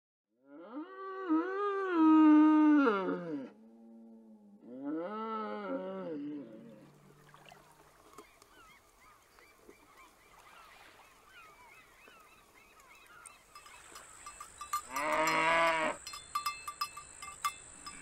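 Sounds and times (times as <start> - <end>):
cow mooing: 0.4 - 7.0, 14.8 - 16.1
faint high chirping: 7.5 - 18.0
cowbell clanking: 13.4 - 18.0.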